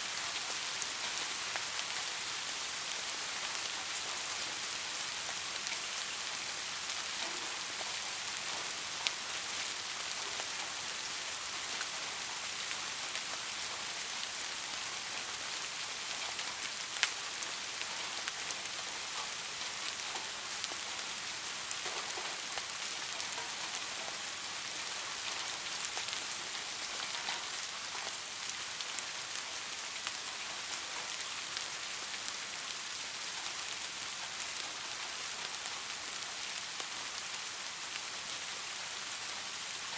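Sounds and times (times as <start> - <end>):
rain falling: 0.0 - 39.9
raindrop ticks: 7.2 - 10.8, 16.2 - 17.2, 21.7 - 24.2, 25.0 - 29.1.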